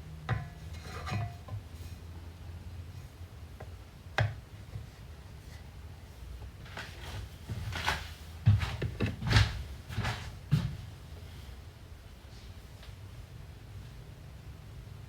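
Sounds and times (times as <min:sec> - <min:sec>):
cookware and utensils clattering: 0:00.3 - 0:01.5.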